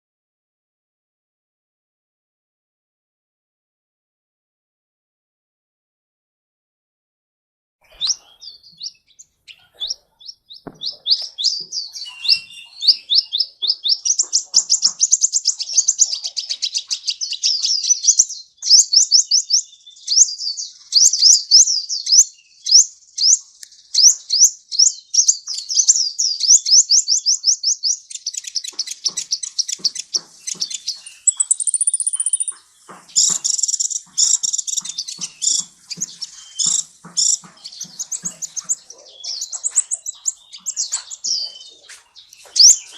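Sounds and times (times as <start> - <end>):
bird singing fast high chirps: 7.8 - 42.9
thin high bird whistle: 31.2 - 32.5.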